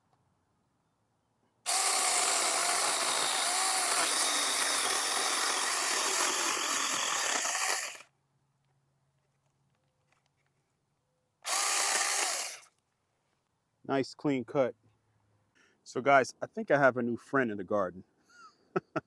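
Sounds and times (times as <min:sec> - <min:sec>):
electric chainsaw cutting branch: 0:01.7 - 0:08.0, 0:11.5 - 0:12.7.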